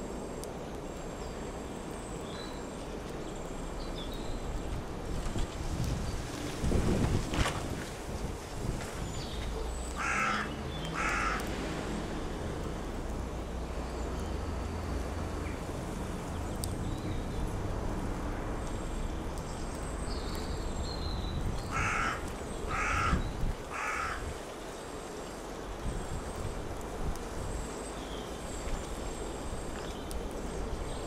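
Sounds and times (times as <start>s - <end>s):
harsh bird calls: 9.0s - 11.5s, 20.2s - 24.4s.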